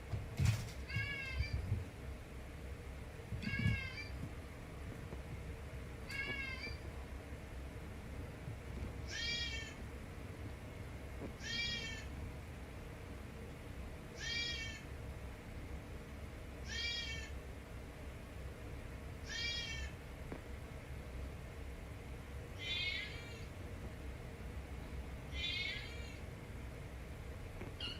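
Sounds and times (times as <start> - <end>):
kitten meowing: 9.1 - 9.8, 11.4 - 12.1, 14.2 - 14.8, 19.3 - 19.9, 22.6 - 23.4, 25.4 - 26.2.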